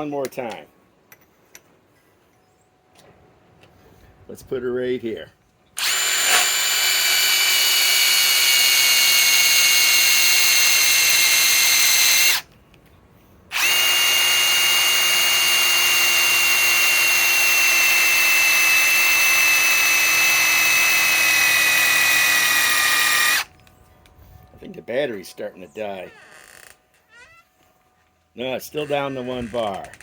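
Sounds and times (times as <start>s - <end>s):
impact wrench driving screw into wood: 5.8s - 12.4s, 13.5s - 23.5s.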